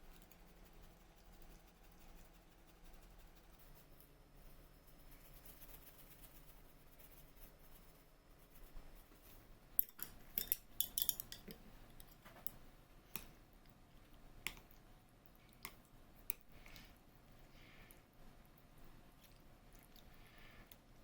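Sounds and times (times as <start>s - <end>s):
tableware clicking and clinking: 9.8s - 11.6s.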